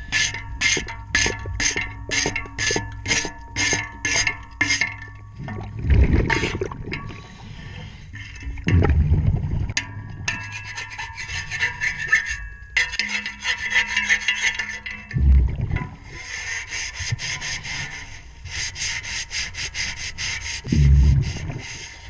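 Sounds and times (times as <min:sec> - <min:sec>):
scraper rubbing on propeller underwater: 0:10.4 - 0:12.4, 0:13.0 - 0:15.1, 0:16.0 - 0:22.0.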